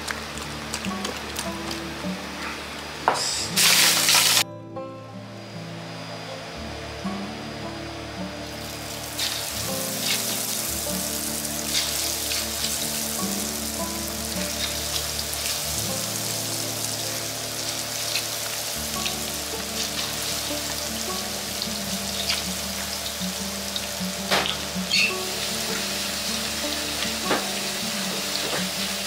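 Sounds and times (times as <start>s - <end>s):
oil crackling and popping: 0.0s - 2.6s, 3.5s - 4.4s, 8.6s - 29.0s
chicken deep-frying in oil: 0.0s - 4.4s, 8.4s - 29.0s.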